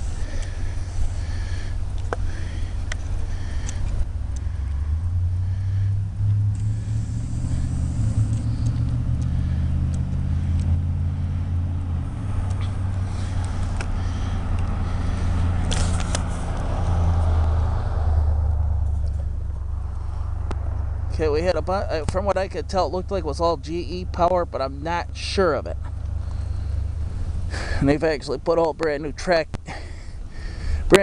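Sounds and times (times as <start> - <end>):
low engine drone: 0.0 - 31.0
sharp clicks: 1.8 - 4.8, 8.1 - 10.8, 12.4 - 14.8.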